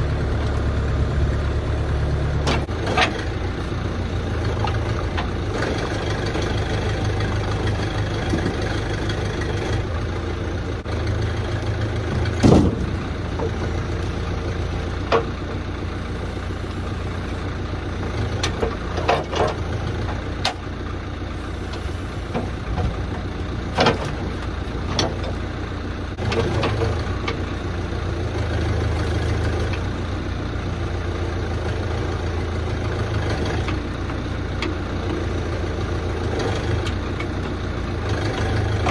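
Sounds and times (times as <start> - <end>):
engine rumbling: 0.0 - 38.9
logs knocking: 12.0 - 15.6.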